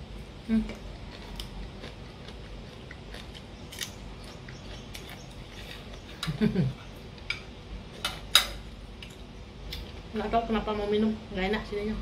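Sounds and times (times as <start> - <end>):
crunching spring onion: 0.8 - 6.3.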